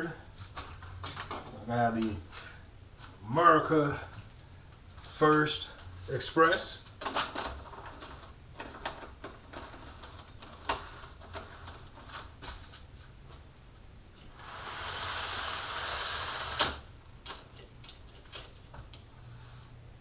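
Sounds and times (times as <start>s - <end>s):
model train motor hum: 14.4s - 16.8s.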